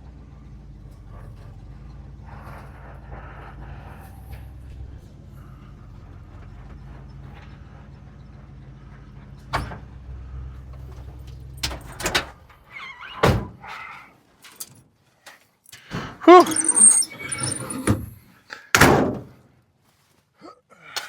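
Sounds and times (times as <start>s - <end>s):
vehicle engine humming: 0.0s - 12.7s
door-like knocks and thunks: 18.8s - 19.4s.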